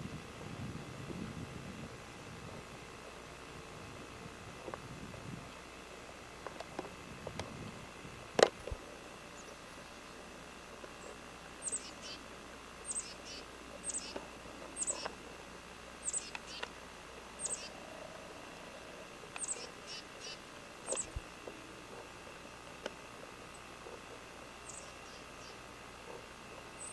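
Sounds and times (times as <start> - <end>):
bird chirping: 11.0 - 14.2, 14.8 - 15.2, 16.0 - 16.7, 17.4 - 17.9, 19.4 - 21.2, 24.6 - 25.6.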